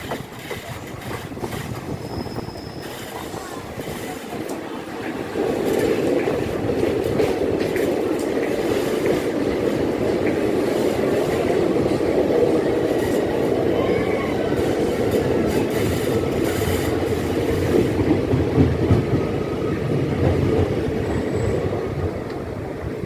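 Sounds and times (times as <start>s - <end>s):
train rumbling on rails: 0.0s - 23.0s
faint wheel squeal: 1.9s - 4.1s.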